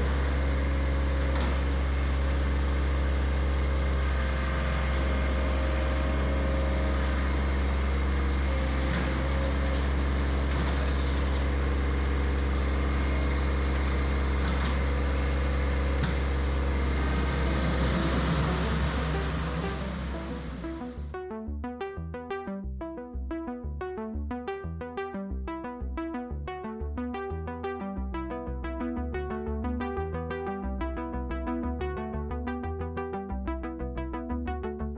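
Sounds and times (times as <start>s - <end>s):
tractor engine running: 0.0s - 21.1s.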